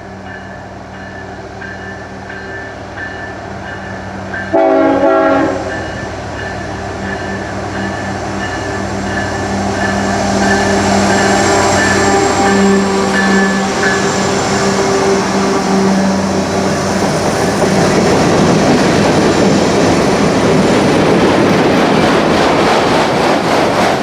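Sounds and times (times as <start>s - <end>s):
train wheel noise: 0.0s - 24.0s
diesel locomotive engine running: 1.5s - 24.0s
train horn blast: 4.5s - 5.9s, 11.4s - 16.6s.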